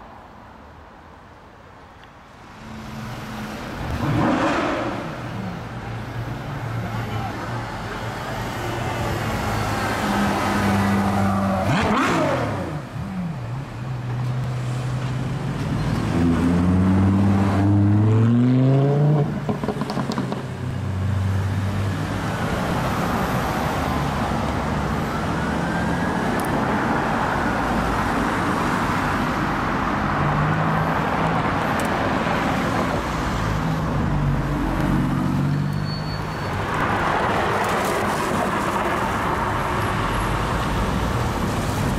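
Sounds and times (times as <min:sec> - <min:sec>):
cars driving past: 0:02.4 - 0:41.9.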